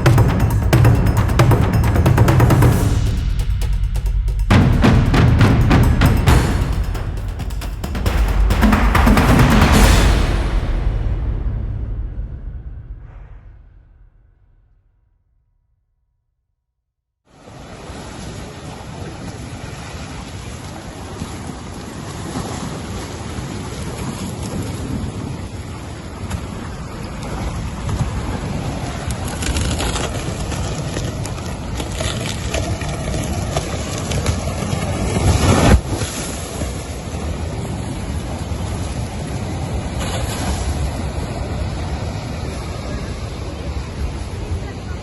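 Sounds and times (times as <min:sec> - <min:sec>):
storm rushing and buffeting: 0:00.0 - 0:14.6
storm wind and surge: 0:00.0 - 0:15.1, 0:24.8 - 0:45.0.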